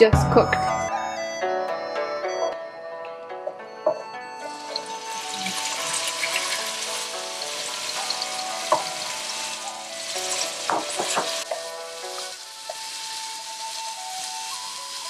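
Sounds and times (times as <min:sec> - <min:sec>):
soft background music: 0:00.0 - 0:15.0
beef sizzling in a hot wok: 0:04.5 - 0:15.0.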